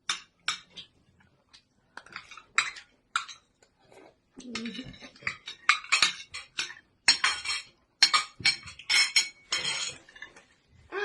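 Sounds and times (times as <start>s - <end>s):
cutlery clinking on dishware: 4.4s - 10.5s.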